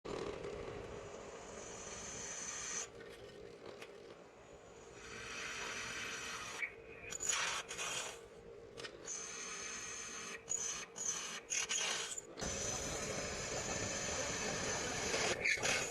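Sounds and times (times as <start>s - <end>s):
drill cutting sheet metal: 9.1s - 15.9s.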